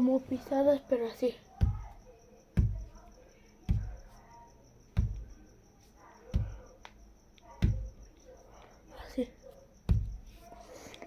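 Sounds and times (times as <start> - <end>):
heavy stomping thuds: 1.6 - 4.2, 4.9 - 5.5, 6.3 - 6.8, 7.6 - 8.1, 9.8 - 10.5.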